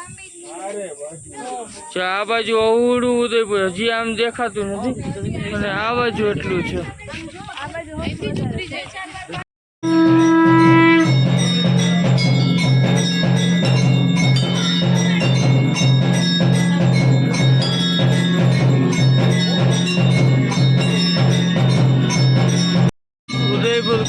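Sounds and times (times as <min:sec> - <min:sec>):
held bell-like note: 0:09.8 - 0:24.0
pulsing beat with mallet notes: 0:09.8 - 0:24.0.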